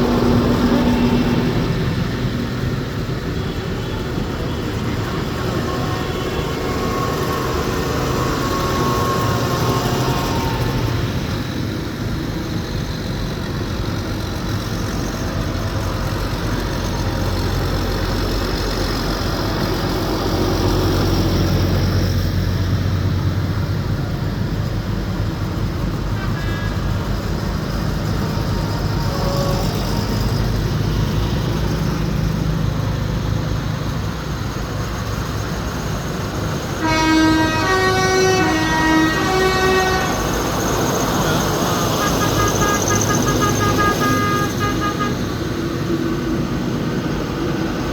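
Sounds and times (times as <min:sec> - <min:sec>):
tractor engines rumbling: 0:00.0 - 0:47.9
multi-tone horn: 0:36.8 - 0:40.6, 0:41.3 - 0:45.4.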